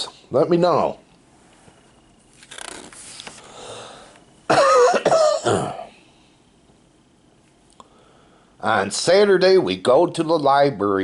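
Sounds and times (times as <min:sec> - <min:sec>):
soft rustle: 0:01.2 - 0:03.5.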